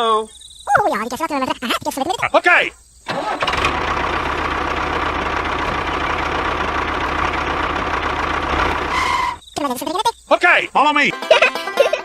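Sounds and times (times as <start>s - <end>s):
engine idling: 3.1s - 9.4s.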